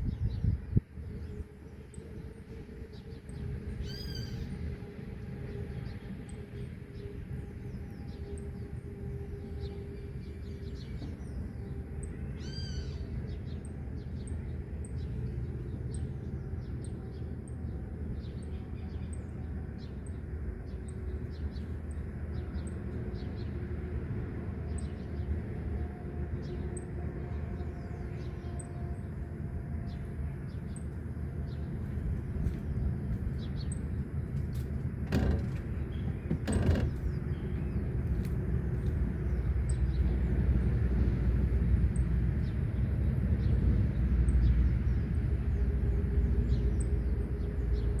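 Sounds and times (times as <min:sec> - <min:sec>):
distant road traffic: 0:00.0 - 0:48.0
wind: 0:00.0 - 0:48.0
birds chirping: 0:24.7 - 0:40.4.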